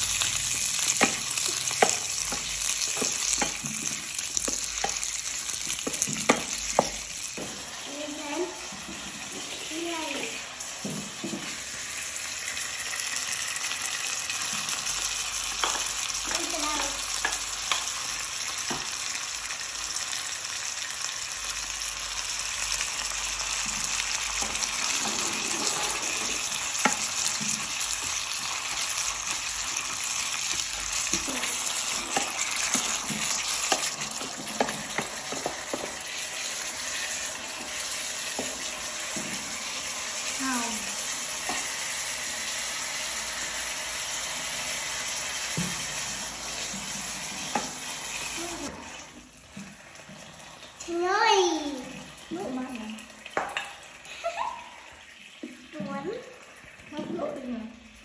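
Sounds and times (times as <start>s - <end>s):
food sizzling in oil: 0.0s - 58.0s
wooden spatula scraping a pan: 23.6s - 39.8s.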